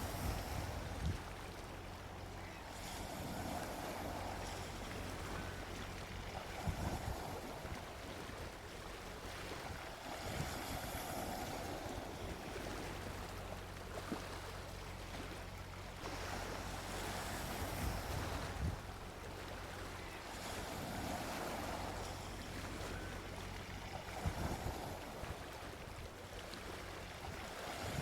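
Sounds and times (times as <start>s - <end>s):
sea waves washing onto beach: 0.0s - 28.0s.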